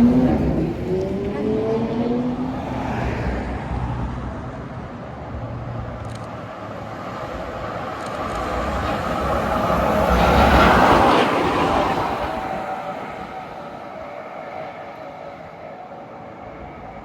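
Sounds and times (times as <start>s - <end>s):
tram running noise: 0.0s - 17.0s
tram motor whine: 4.2s - 17.0s.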